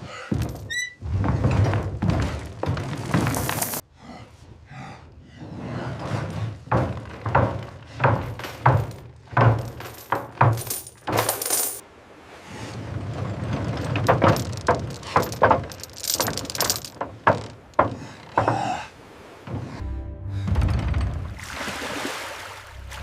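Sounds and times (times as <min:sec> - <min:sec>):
metal coins clinking: 0:03.3 - 0:03.8, 0:09.6 - 0:11.8, 0:13.8 - 0:17.8.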